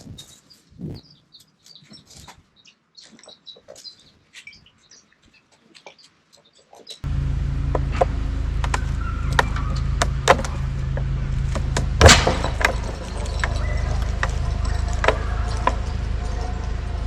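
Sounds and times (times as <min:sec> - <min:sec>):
heavy machinery engine running: 0:07.0 - 0:17.0
metallic clanks and knocks: 0:07.7 - 0:17.0.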